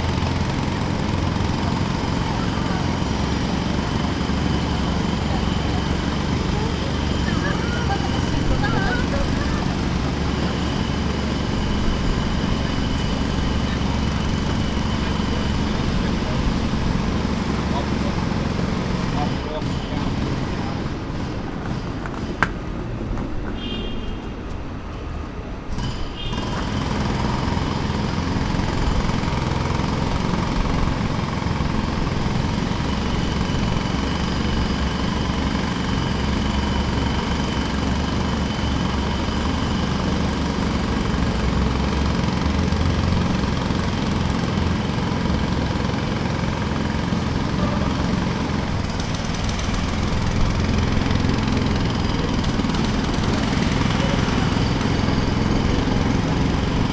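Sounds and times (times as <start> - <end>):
jackhammer hammering: 0.0 - 22.8, 25.7 - 56.9.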